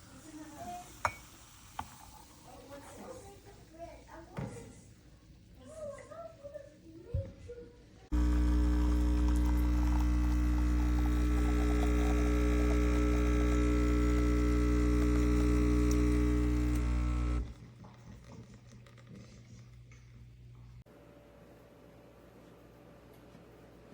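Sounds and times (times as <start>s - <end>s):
espresso machine pump humming: 8.1s - 17.6s.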